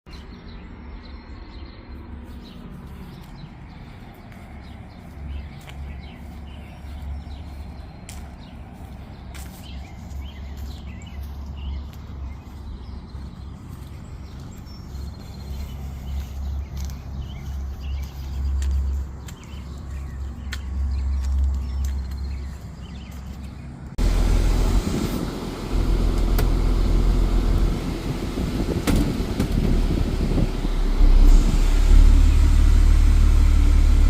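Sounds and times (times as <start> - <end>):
road noise: 0.1 - 34.0
truck engine droning: 23.8 - 34.0.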